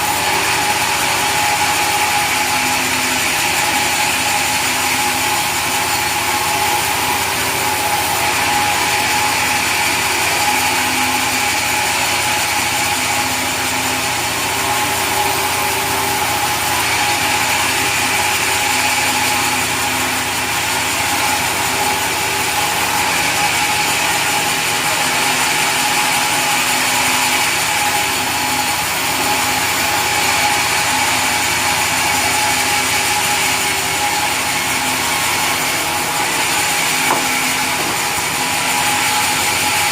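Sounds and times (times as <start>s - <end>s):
sawmill saw cutting timber: 0.0s - 39.9s.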